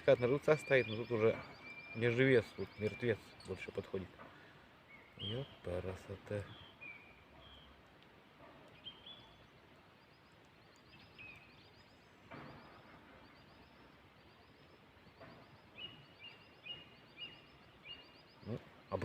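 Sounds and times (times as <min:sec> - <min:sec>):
faint birdsong: 0:00.0 - 0:19.0.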